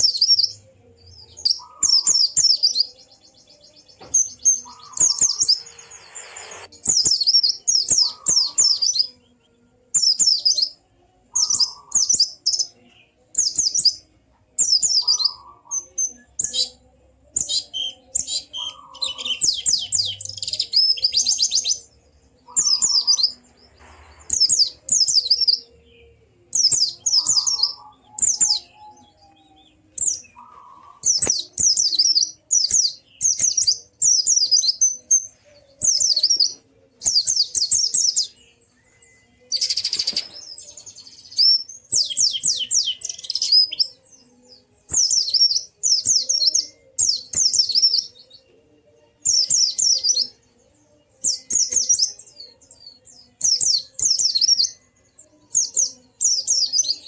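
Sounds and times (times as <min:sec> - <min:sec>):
bird twittering trills: 0:00.0 - 0:09.1, 0:14.6 - 0:25.9, 0:26.5 - 0:44.0.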